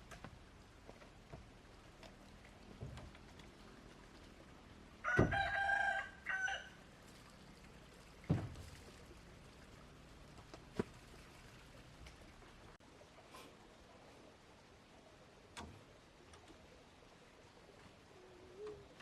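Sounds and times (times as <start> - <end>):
rooster crowing: 5.0 - 6.8.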